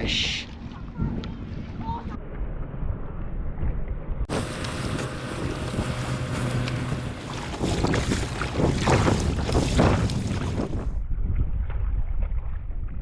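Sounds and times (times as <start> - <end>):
wind rumbling on microphone: 0.0 - 13.0
water lapping at kayak: 4.3 - 11.0.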